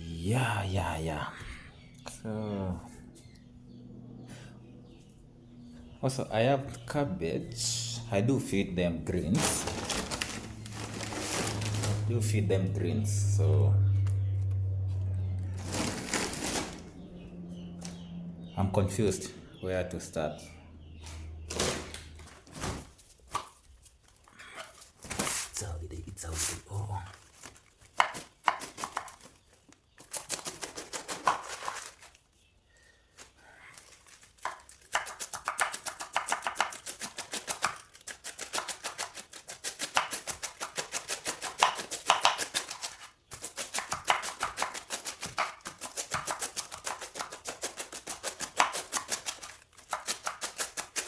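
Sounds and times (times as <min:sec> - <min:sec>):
knife chopping cabbage: 0:27.8 - 0:29.4, 0:30.0 - 0:32.0, 0:34.1 - 0:51.0.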